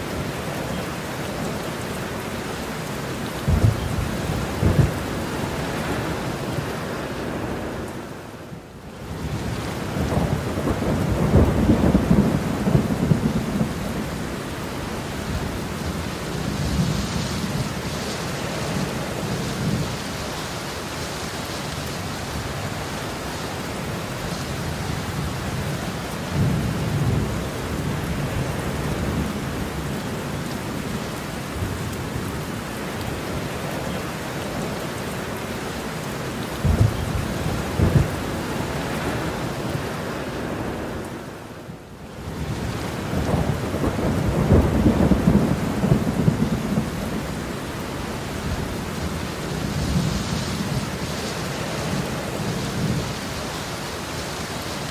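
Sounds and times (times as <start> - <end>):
heavy rain: 0.0 - 54.9
thunder rumbling: 3.4 - 7.7, 9.2 - 20.1, 36.6 - 40.0, 42.3 - 53.3.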